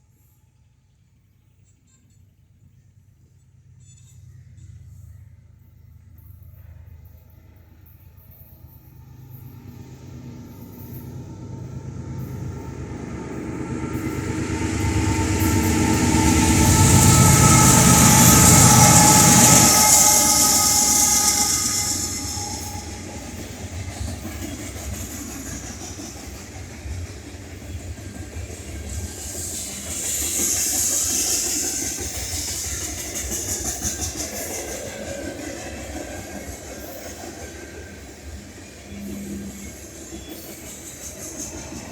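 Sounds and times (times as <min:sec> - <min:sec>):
diesel locomotive engine: 0:02.6 - 0:41.9
freight cars rumbling past: 0:08.3 - 0:41.9.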